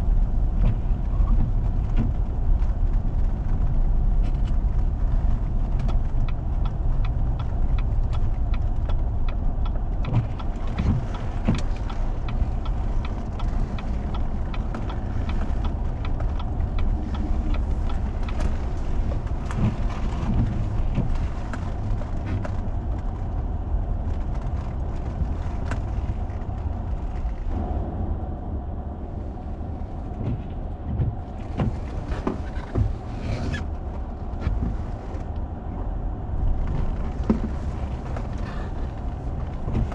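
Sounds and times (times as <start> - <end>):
small clicks and crackles: 0.0 - 27.6, 36.4 - 39.9
vehicle engine and road rumble: 0.0 - 39.9.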